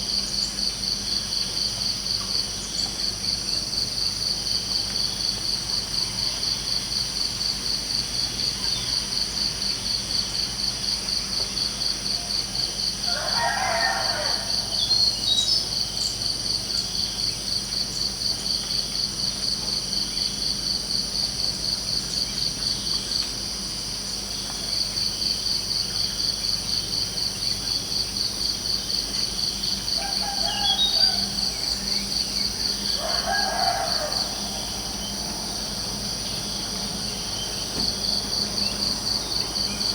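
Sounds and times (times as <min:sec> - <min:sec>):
crickets trilling: 0:00.0 - 0:39.9
rooster crowing: 0:13.0 - 0:15.2, 0:29.9 - 0:32.1, 0:32.7 - 0:36.2.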